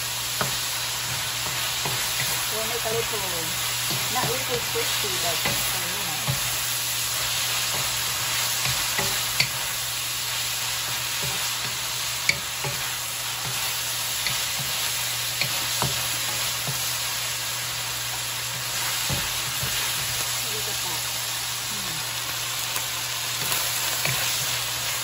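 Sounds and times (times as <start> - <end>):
beef sizzling in hot oil: 0.0 - 25.0
wooden spatula scraping and tapping pan: 7.5 - 9.6, 10.9 - 16.9, 18.5 - 20.2.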